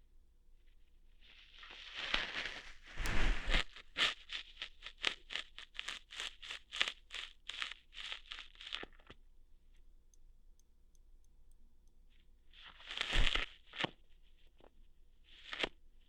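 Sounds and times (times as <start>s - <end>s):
crackling plucking strokes: 1.6s - 9.1s
faint ticks: 8.1s - 13.9s.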